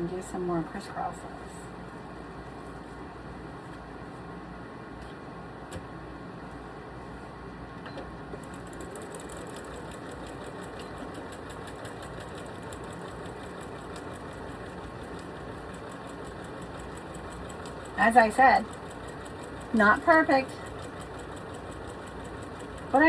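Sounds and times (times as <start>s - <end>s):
sewing machine running hum: 8.3s - 23.0s
rapid needle ticking: 8.4s - 23.0s.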